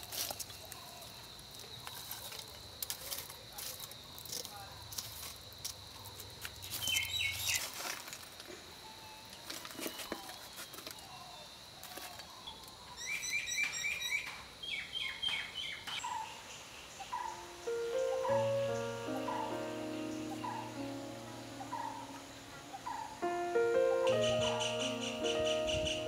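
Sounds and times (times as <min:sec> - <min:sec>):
songbirds chirping: 0:05.6 - 0:07.8, 0:08.7 - 0:26.0.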